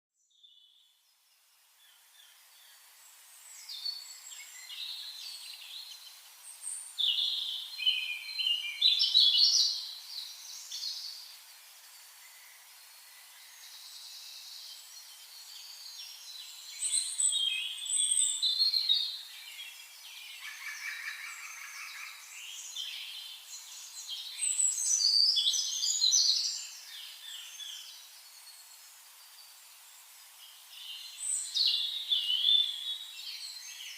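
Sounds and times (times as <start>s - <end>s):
faint steady hiss: 0.2s - 33.9s.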